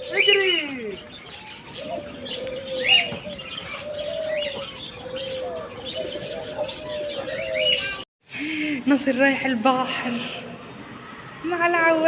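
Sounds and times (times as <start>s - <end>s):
pigeons cooing: 0.0s - 8.0s
small birds chirping: 0.0s - 10.6s.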